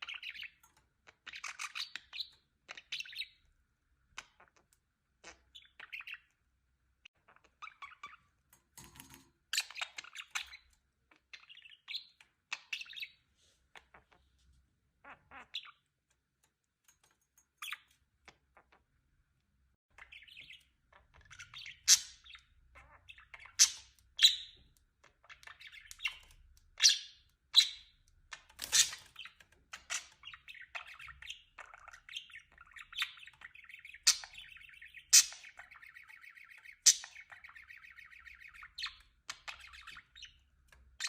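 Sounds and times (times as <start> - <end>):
budgerigar chirping and squawking: 0.0 - 3.4, 5.2 - 6.3, 7.1 - 8.3, 9.5 - 13.2, 15.0 - 15.8, 20.0 - 40.4.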